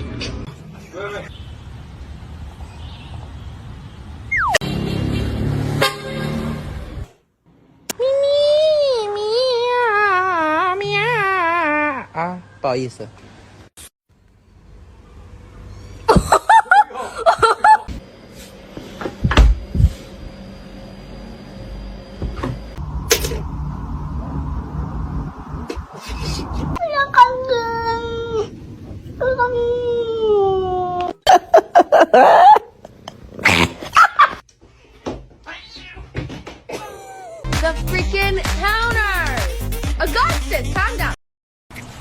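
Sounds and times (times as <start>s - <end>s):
person laughing: 16.1s - 17.9s, 31.3s - 34.4s, 36.7s - 37.5s.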